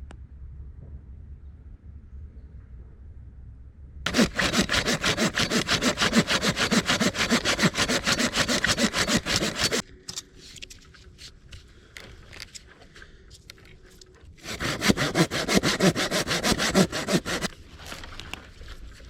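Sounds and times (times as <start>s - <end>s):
hand saw cutting wood: 4.1s - 9.8s, 14.4s - 17.6s.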